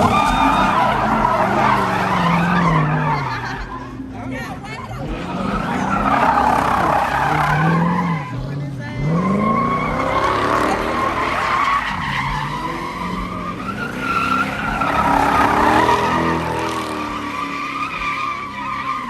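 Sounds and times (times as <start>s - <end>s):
engine at high revs: 0.0s - 19.0s
tire squeal: 0.0s - 19.0s.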